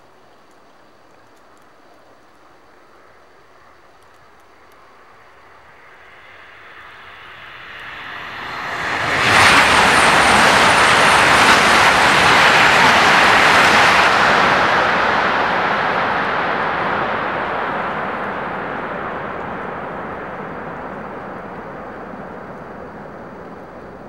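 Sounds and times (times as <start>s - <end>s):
high-speed train rushing past: 4.9s - 24.0s.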